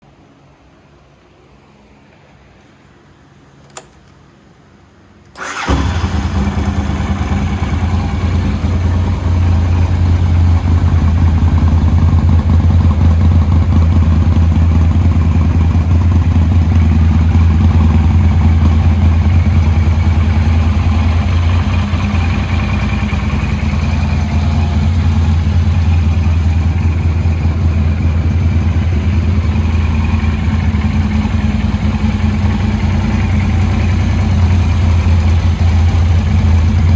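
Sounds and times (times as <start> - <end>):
click: 3.6 - 4.2
motorcycle engine starting and idling: 5.3 - 36.9.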